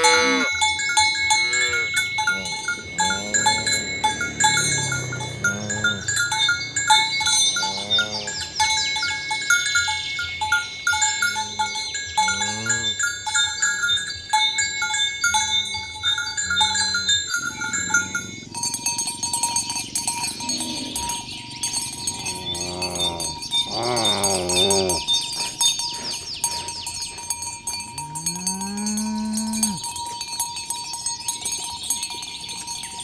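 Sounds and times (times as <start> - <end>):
cows mooing: 0.0 - 9.6, 11.1 - 13.2, 16.2 - 26.7, 28.0 - 29.8
cow bells clinking: 0.0 - 33.0.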